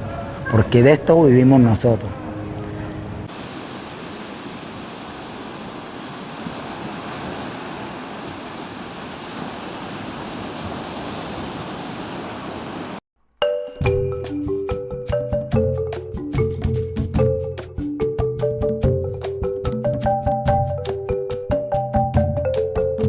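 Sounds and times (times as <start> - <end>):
ocean surf rushing: 0.0 - 13.0.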